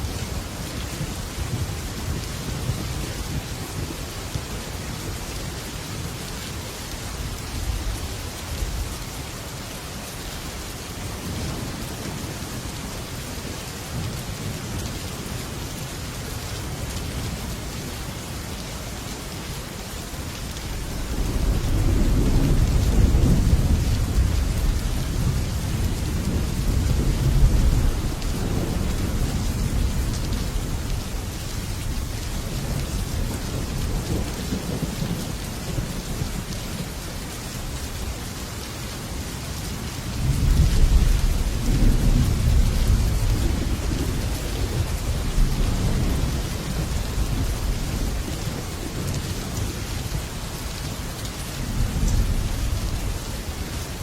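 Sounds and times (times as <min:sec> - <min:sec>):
heavy rain on a metal roof: 0:00.0 - 0:54.0.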